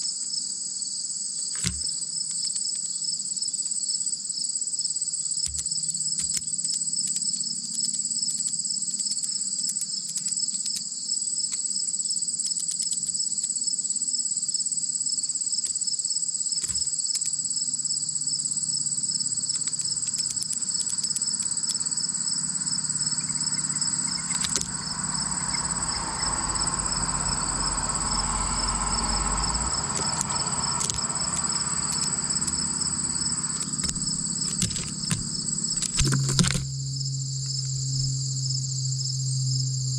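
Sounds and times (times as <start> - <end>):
crickets chirping: 0.0 - 39.9
low rush of noise: 18.8 - 35.8.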